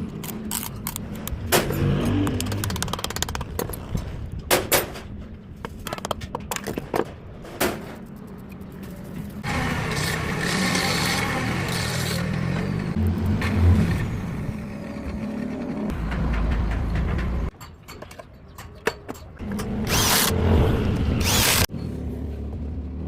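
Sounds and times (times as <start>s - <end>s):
sharp metallic clicks and knocks: 0.2s - 9.0s, 15.9s - 19.9s.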